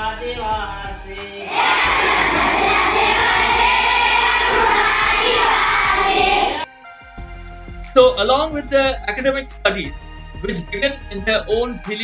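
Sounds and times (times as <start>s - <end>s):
children singing in chorus: 1.3s - 6.7s.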